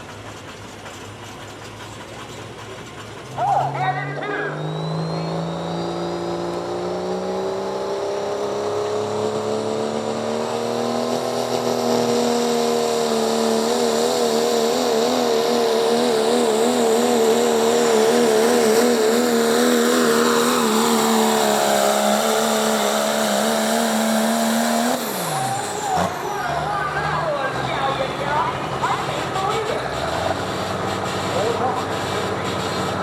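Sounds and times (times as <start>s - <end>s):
engine at high revs under load: 3.7s - 33.0s.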